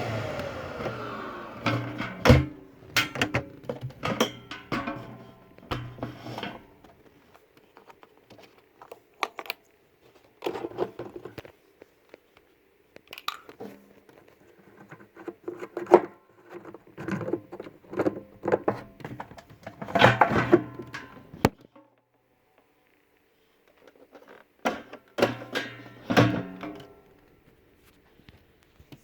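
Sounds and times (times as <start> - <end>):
handling clicks and knocks: 1.7 - 9.6.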